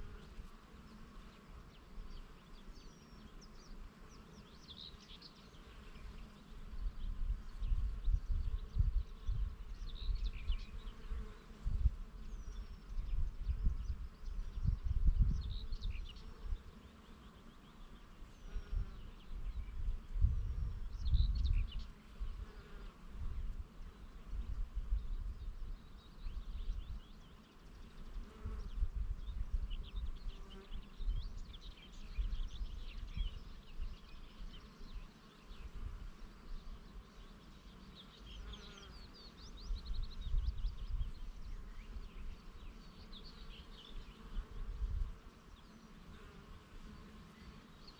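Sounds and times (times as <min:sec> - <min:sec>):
wind buffeting microphone: 0:06.8 - 0:10.6, 0:11.6 - 0:16.1, 0:18.5 - 0:22.4.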